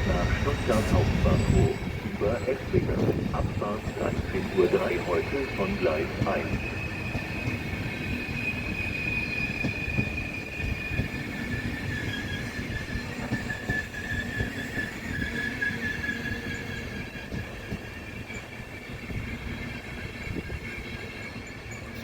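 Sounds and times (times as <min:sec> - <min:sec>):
train high-pitched squeal: 0:00.0 - 0:22.0
train low rumble: 0:00.0 - 0:22.0.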